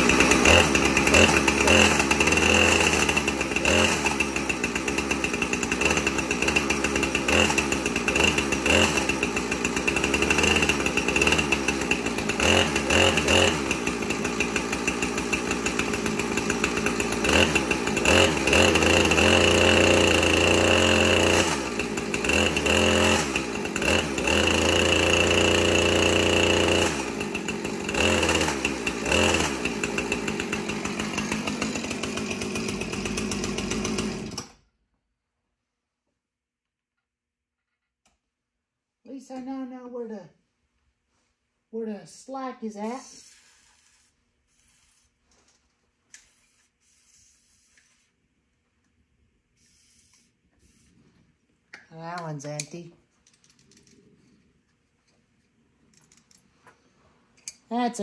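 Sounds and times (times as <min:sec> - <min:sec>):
chainsaw revving: 0:00.0 - 0:34.7.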